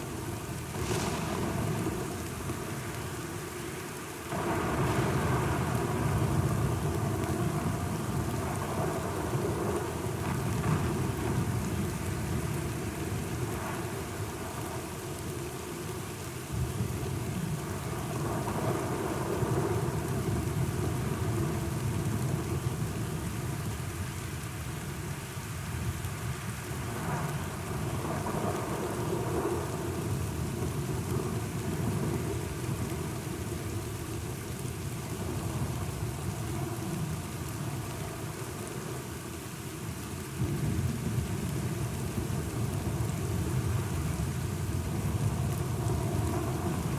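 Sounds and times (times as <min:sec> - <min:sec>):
steady rain hiss: 0:00.0 - 0:46.9
low rolling thunder: 0:00.7 - 0:02.8.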